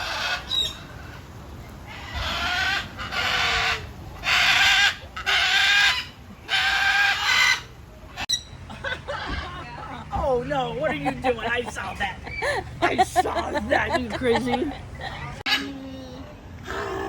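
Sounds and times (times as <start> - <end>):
parrot squawking: 1.9 - 8.5, 15.5 - 15.8.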